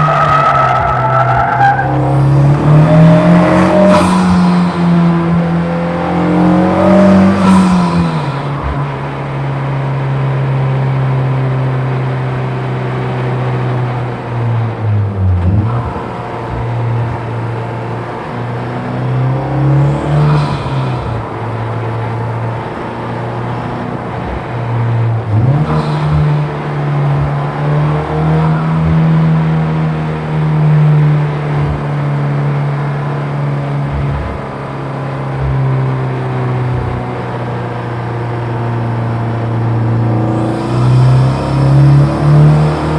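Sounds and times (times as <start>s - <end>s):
car engine running hard: 0.0s - 42.9s.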